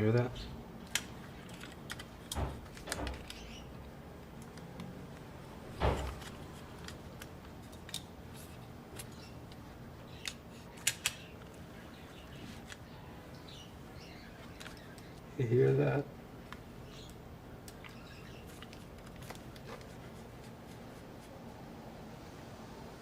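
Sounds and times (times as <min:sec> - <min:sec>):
small tools clicking and knocking: 0:00.8 - 0:03.6, 0:05.9 - 0:11.6
pet birds chirping: 0:03.0 - 0:03.8, 0:09.0 - 0:09.4, 0:10.0 - 0:10.4, 0:11.1 - 0:15.4, 0:16.6 - 0:18.9.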